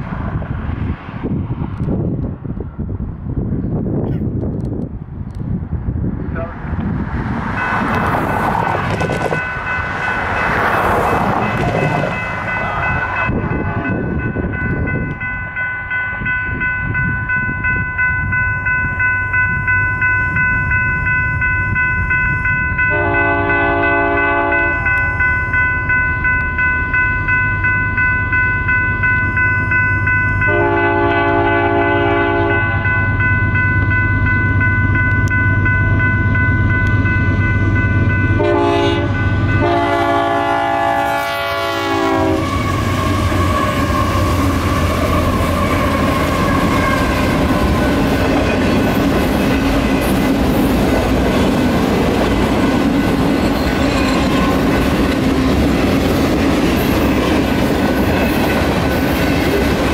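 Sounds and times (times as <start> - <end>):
train cars clacking over rails: 6.3 - 15.3, 42.0 - 59.9
crossing bell ringing: 7.5 - 59.9
locomotive air horn blasts: 22.9 - 25.0, 30.4 - 32.8, 38.4 - 47.3.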